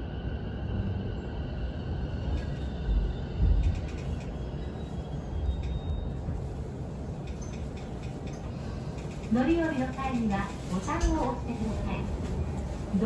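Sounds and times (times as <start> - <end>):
train interior rumble: 0.0 - 13.0
faint clicks: 7.2 - 11.2.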